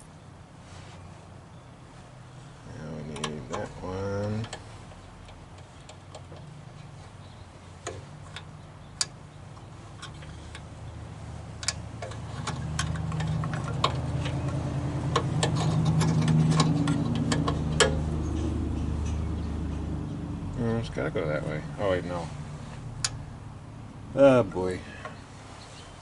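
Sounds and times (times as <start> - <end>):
low engine-like hum: 0.0 - 26.0
small parts clicking and tapping: 11.6 - 19.2.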